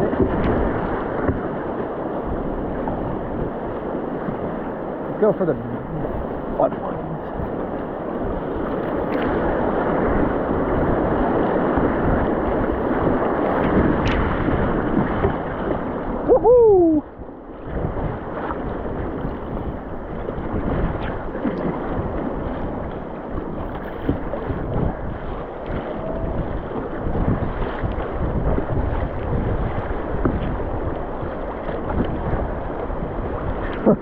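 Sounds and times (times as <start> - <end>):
rushing whitewater: 0.0 - 34.0
wind buffeting microphone: 0.0 - 34.0
person crying out: 16.3 - 17.1.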